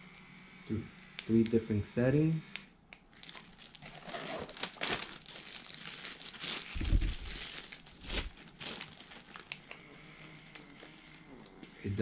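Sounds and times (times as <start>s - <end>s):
plastic packaging rustling: 3.1s - 11.6s.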